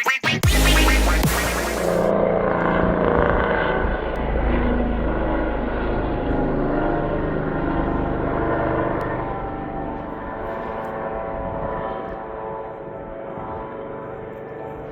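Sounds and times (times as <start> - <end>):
electronic music: 0.0 - 2.1
helicopter turbine and rotor: 0.5 - 14.9.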